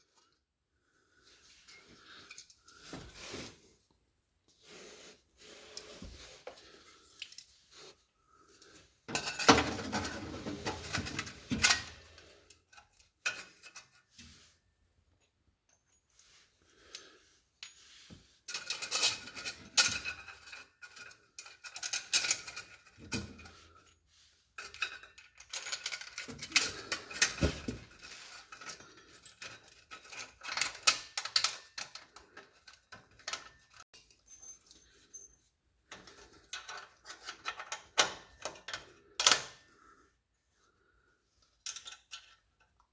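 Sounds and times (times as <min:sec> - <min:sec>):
metal tools clinking and clattering: 0:09.1 - 0:14.4, 0:15.1 - 0:39.7, 0:41.5 - 0:42.8.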